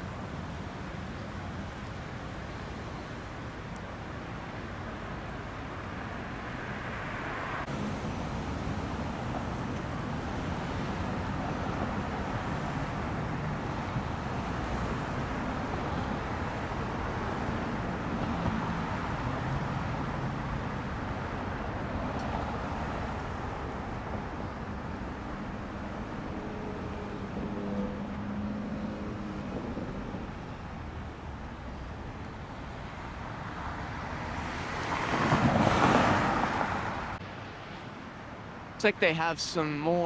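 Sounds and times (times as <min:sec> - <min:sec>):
road traffic noise: 0:00.0 - 0:40.0.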